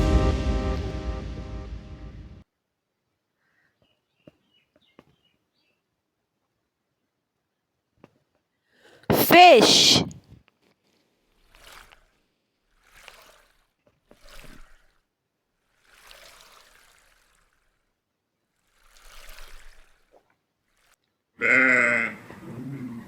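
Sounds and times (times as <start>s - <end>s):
sheep bleating: 21.4s - 22.2s.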